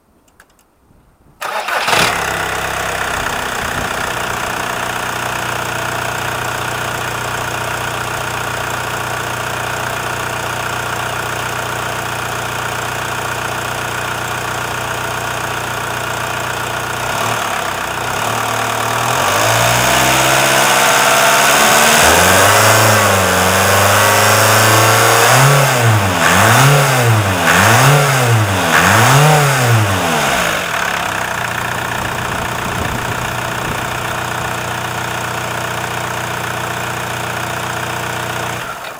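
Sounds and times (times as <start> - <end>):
diesel engine revving: 1.4 - 9.0, 16.7 - 38.8
diesel engine starting and idling: 1.4 - 38.9.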